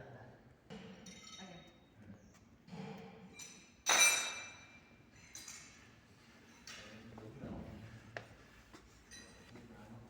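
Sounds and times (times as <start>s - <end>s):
sharp ringing clink: 3.4s - 4.8s.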